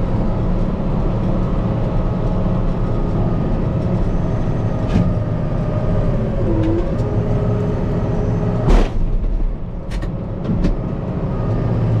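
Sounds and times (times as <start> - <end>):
diesel tractor engine running: 0.0 - 12.0
loud whoosh or thump: 8.6 - 9.4.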